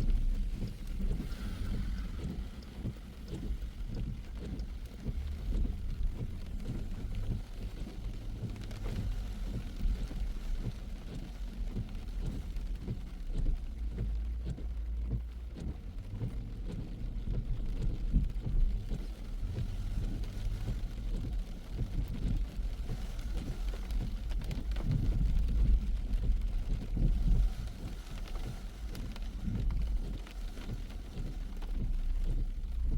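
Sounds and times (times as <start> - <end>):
car driving rumble: 0.0 - 32.9
rain tapping on a car: 0.0 - 32.9.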